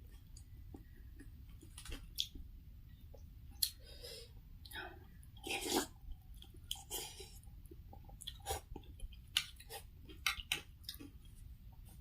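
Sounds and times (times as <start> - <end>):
person chewing and eating: 0.0 - 2.5, 4.6 - 12.0.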